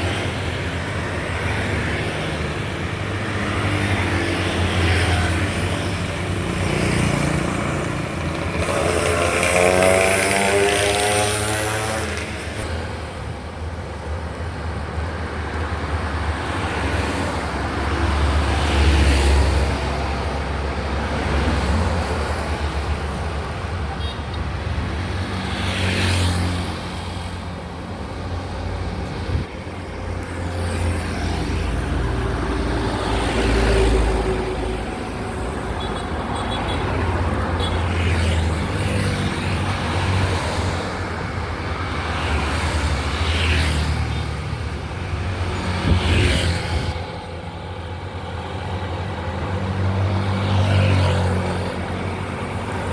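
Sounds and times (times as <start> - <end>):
vehicles swishing past: 0.0 - 13.5, 15.3 - 52.9.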